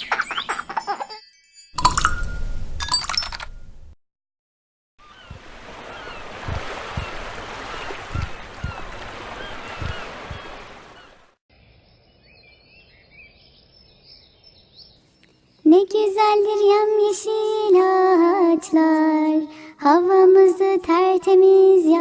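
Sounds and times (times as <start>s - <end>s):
outdoor background: 0.0s - 4.0s, 5.0s - 22.0s
rushing water: 5.0s - 11.4s.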